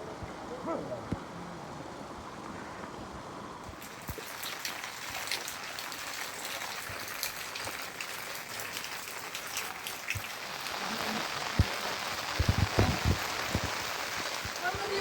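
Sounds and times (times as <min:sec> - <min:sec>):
rain pattering: 0:03.6 - 0:15.0.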